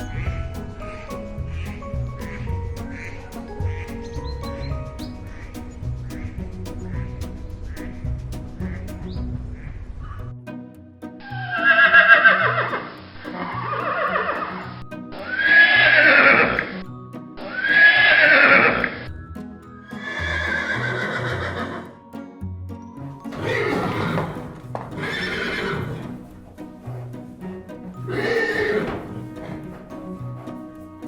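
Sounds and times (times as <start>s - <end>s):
background music: 0.0s - 31.0s
horses neighing: 11.3s - 16.8s, 17.5s - 19.1s, 19.9s - 22.0s, 23.3s - 31.0s.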